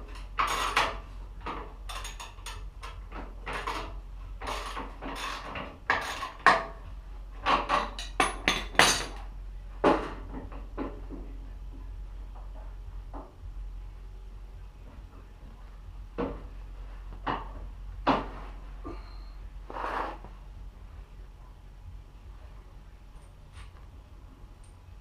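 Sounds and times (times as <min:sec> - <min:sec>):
metal tools clinking: 0:07.6 - 0:09.2.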